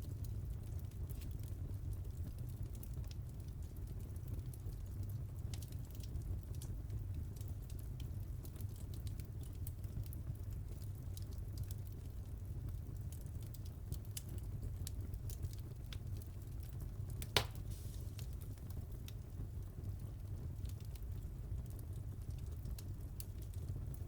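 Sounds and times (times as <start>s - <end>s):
wood fire burning: 0.0s - 24.0s
fire pop: 17.2s - 18.8s.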